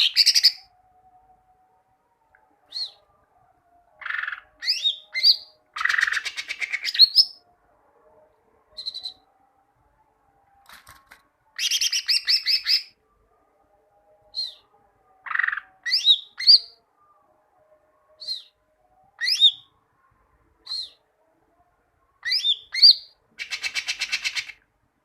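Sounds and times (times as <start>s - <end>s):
bird chirps whistles and trills: 2.7s - 3.0s, 4.0s - 7.4s, 8.8s - 9.2s, 11.6s - 12.9s, 15.3s - 16.8s, 18.2s - 18.5s, 19.2s - 19.6s, 20.6s - 21.0s, 22.2s - 24.5s.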